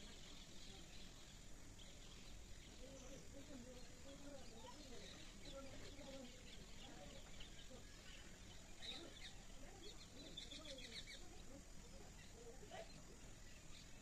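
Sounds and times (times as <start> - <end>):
faint bird chirping: 0.0 - 14.0.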